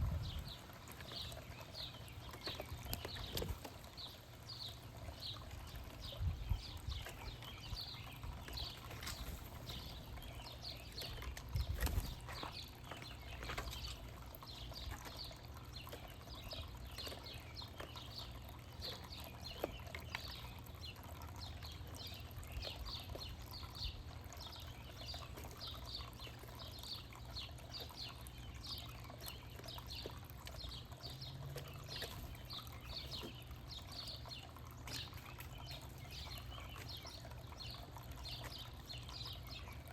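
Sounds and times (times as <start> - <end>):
low background rumble: 0.0 - 13.9
small birds chirping: 0.0 - 39.9.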